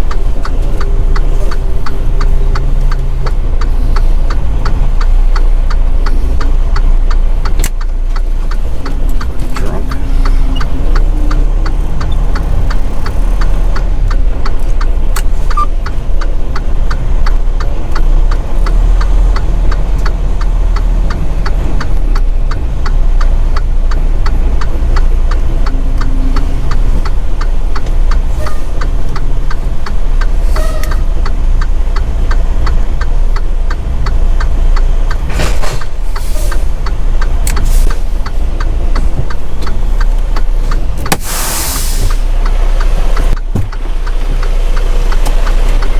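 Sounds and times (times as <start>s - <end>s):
faint regular ticking: 0.0s - 41.2s, 42.0s - 45.9s
diesel truck engine rumble: 0.0s - 45.9s
short hissing bursts: 41.2s - 42.2s.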